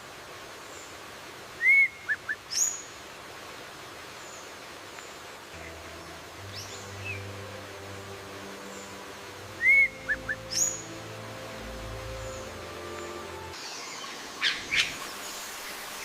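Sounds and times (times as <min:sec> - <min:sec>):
soft background music: 0:05.6 - 0:14.1
bird calls: 0:12.0 - 0:16.0.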